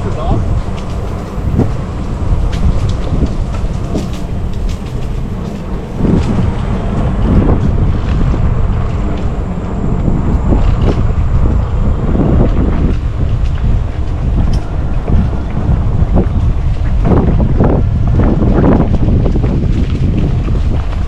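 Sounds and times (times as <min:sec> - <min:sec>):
bike rattling clicks and knocks: 0:00.0 - 0:06.4
tyres rumbling on dirt: 0:00.0 - 0:21.0
wind buffeting microphone: 0:00.0 - 0:21.0.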